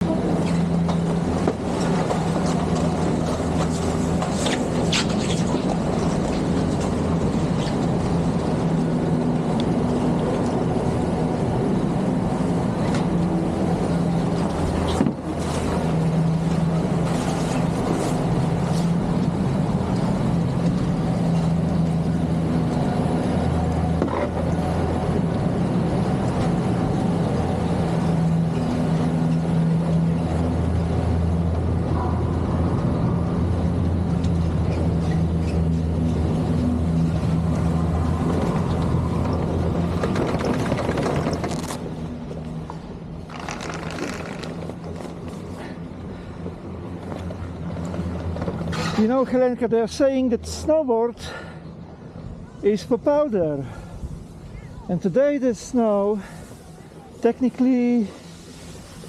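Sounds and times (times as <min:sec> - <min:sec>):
chairlift mechanical hum: 0:00.0 - 0:59.0
chairlift jolt: 0:43.3 - 0:44.8.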